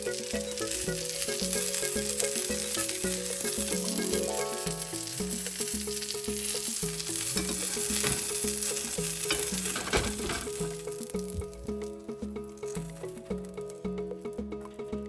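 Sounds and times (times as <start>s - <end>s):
meat sizzling in a pan: 0.0s - 11.6s
background music: 0.0s - 15.0s.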